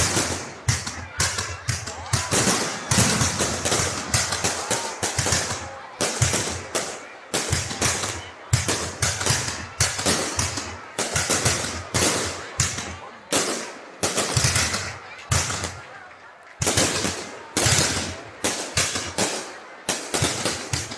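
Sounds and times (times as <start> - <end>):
fireworks banging and crackling: 0.0 - 20.9.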